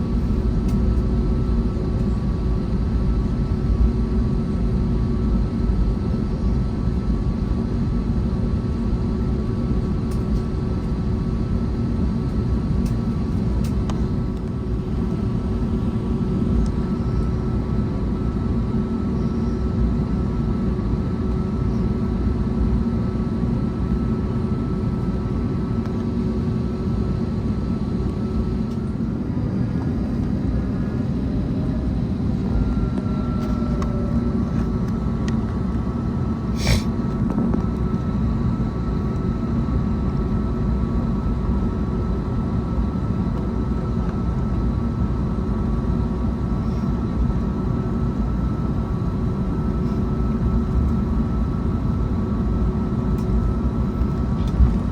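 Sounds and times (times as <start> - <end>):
airplane cabin engine rumble: 0.0 - 54.9.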